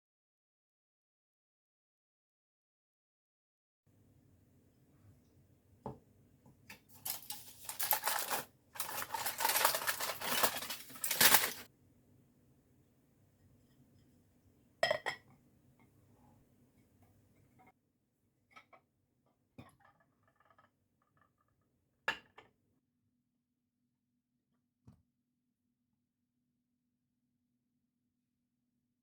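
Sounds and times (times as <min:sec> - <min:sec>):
utensils scraping and clattering: 0:06.7 - 0:11.7.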